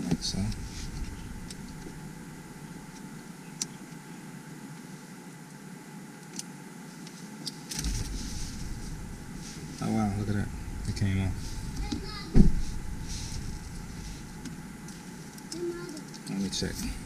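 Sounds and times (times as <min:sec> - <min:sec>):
low rumbling bump: 0:00.0 - 0:03.3, 0:07.8 - 0:15.3
low hum in car cabin: 0:00.0 - 0:17.0.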